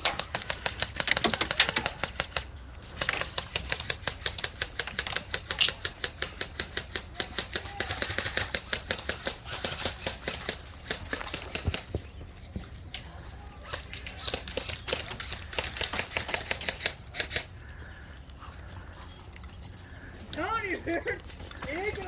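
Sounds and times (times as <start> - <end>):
airsoft guns firing: 0.0 - 11.8.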